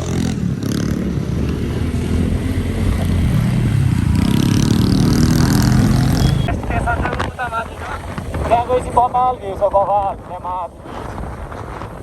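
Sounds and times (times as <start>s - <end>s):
scooter engine revving: 0.0s - 6.7s.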